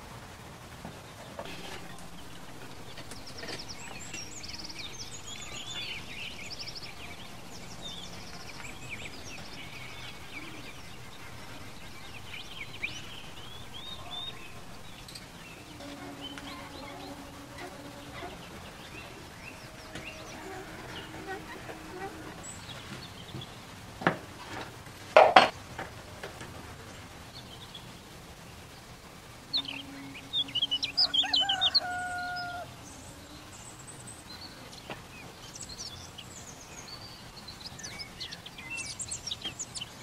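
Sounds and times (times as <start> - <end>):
birds chirping and trilling: 1.3 - 24.6, 29.4 - 40.0
low drawn-out bird calls: 1.4 - 23.6, 29.4 - 33.1.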